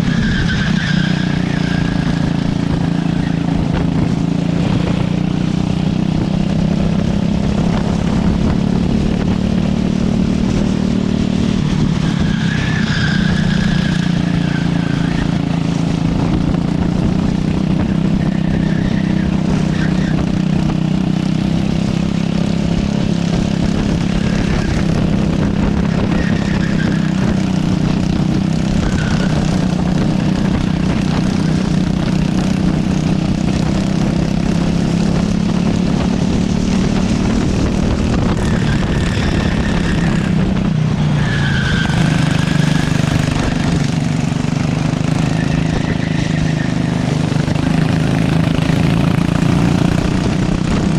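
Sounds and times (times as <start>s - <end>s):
tyre squeals: 0.0s - 3.9s, 11.9s - 15.6s, 17.8s - 20.5s, 25.7s - 31.9s, 38.2s - 44.0s, 45.0s - 50.1s
kart engine drone: 0.0s - 50.9s.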